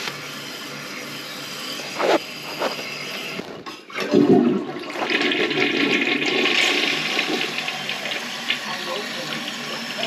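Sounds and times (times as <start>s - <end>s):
toilet flushing: 3.6s - 10.0s.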